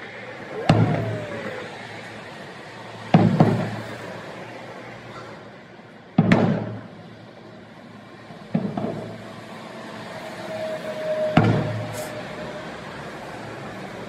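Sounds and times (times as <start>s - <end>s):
fireworks bursting: 0.4s - 4.2s, 11.2s - 12.3s.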